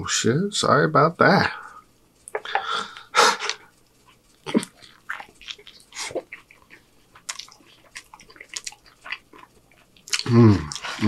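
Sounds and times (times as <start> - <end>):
lip smacks: 2.2 - 11.0
man chewing with wet mouth clicks: 2.2 - 11.0.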